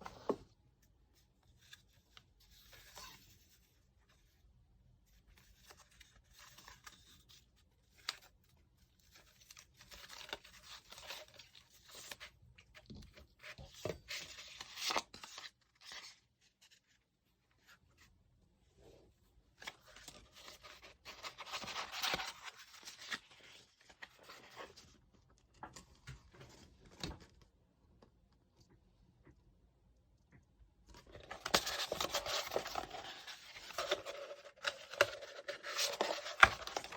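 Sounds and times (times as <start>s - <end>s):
packaging tearing and rustling: 31.2s - 36.9s.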